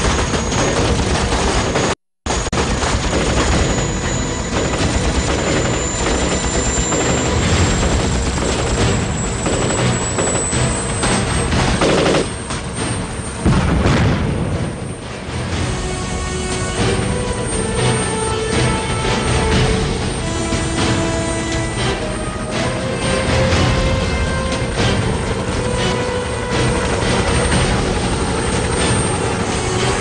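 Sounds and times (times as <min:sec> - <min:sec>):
booms: 0:00.0 - 0:15.6
automatic gunfire: 0:11.8 - 0:12.4.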